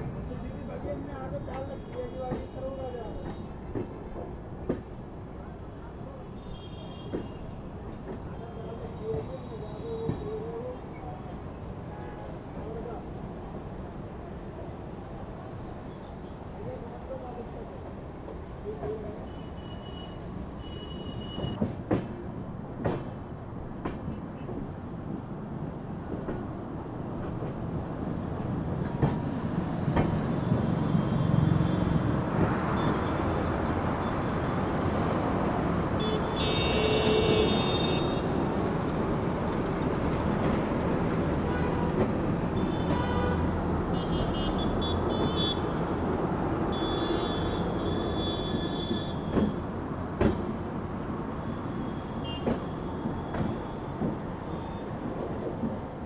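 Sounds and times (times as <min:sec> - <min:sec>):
train wheels rumbling on rails: 0:06.9 - 0:11.1, 0:20.6 - 0:43.2, 0:45.0 - 0:56.0.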